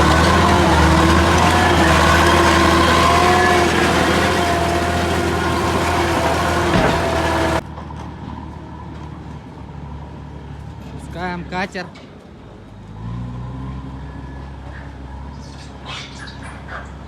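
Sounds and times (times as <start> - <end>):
heavy machine engine droning: 0.0 - 8.4.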